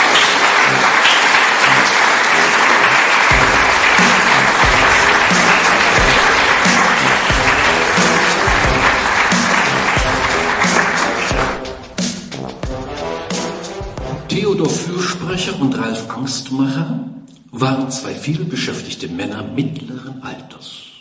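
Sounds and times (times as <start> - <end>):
audience applauding: 0.0 - 12.4
instrumental music: 0.0 - 14.9
deep bass beat: 3.3 - 14.4.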